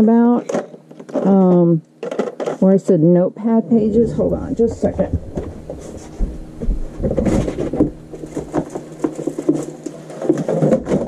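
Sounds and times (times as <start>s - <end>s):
low thumps: 3.7s - 8.7s.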